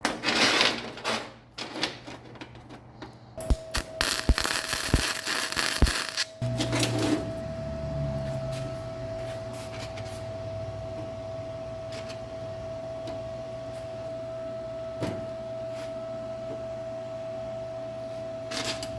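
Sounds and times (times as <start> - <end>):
thin whine: 3.4 - 9.0
low machine hum: 3.4 - 18.0.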